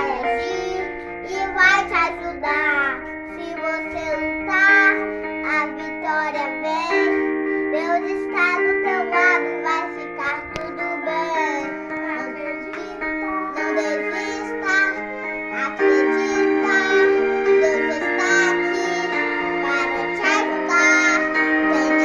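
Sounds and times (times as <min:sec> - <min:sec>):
child singing: 0:00.0 - 0:22.0
sustained instrumental chords: 0:00.0 - 0:22.0.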